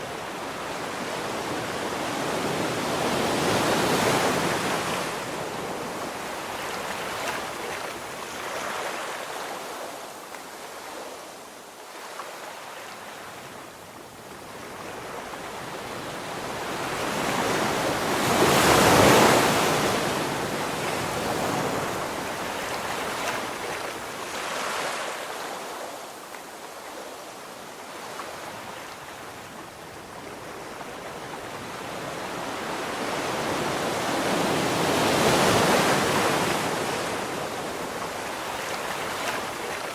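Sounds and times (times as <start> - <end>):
ocean surf breaking: 16.4 - 25.8, 31.4 - 39.9.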